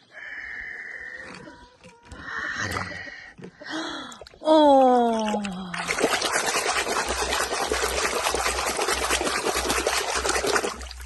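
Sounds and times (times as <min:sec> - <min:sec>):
water running and splashing: 0:04.3 - 0:11.0.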